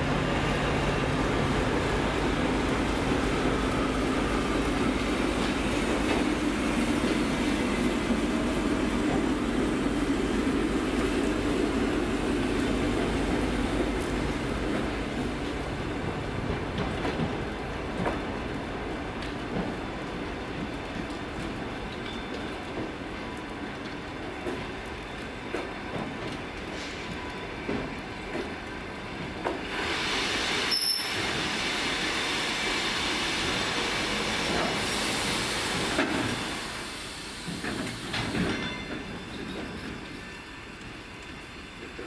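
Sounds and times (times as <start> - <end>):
train wheels rumbling and clicking: 0.0 - 42.0.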